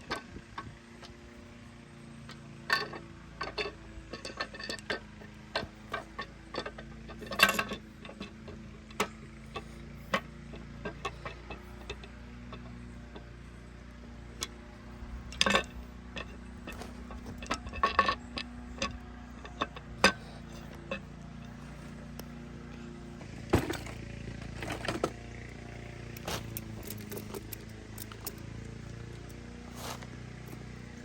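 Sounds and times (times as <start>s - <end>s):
steady low hum: 0.0s - 31.0s
metallic clinks of tools: 26.2s - 28.6s.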